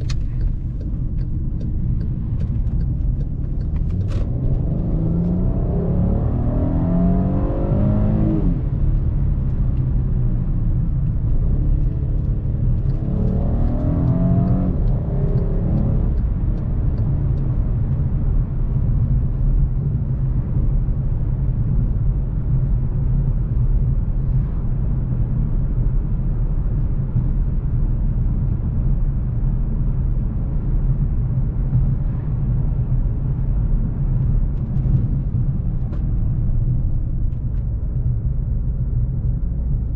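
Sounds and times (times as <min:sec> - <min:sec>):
car engine accelerating: 0:00.0 - 0:24.5
road noise: 0:00.0 - 0:39.9.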